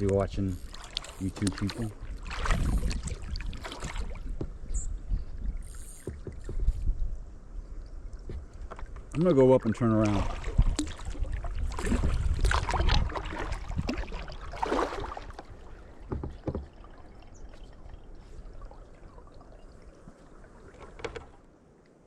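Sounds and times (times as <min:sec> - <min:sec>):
kayak paddle splashing water: 0:00.0 - 0:04.7, 0:08.0 - 0:21.6
wind rumble on microphone: 0:01.6 - 0:09.2, 0:09.9 - 0:16.6.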